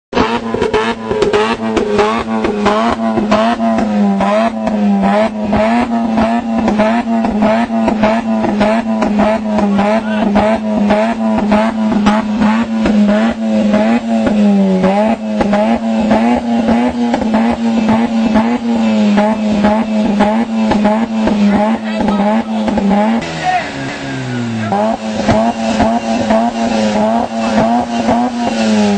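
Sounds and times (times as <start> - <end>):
exhaust pops and crackles: 0.1 - 23.7, 24.5 - 28.9
rotary engine at high revs: 0.1 - 28.9.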